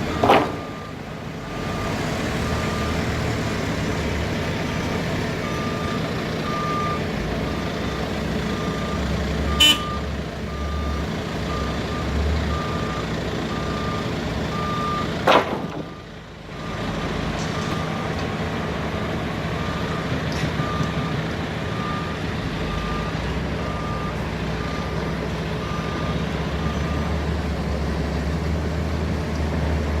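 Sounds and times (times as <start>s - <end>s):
telehandler engine running: 0.0s - 30.0s
reversing alarm beeping: 5.4s - 15.1s, 19.6s - 25.0s, 25.6s - 27.2s.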